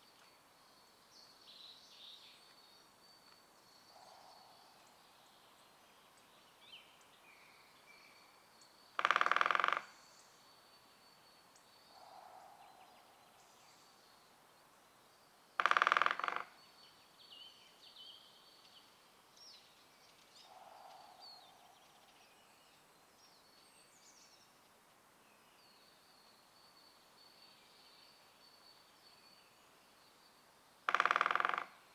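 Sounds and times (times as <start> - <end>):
faint songbird chirps: 0.0 - 9.0, 9.9 - 15.6, 16.2 - 31.2
woodpecker drumming on tree: 9.0 - 10.0, 15.6 - 16.6, 30.8 - 31.9.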